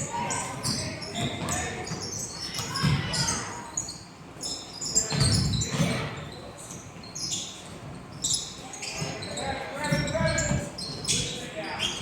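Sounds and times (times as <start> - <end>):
sneakers squeaking on hardwood: 0.1 - 12.0
basketball bouncing on gym floor: 0.5 - 3.4, 5.1 - 6.1.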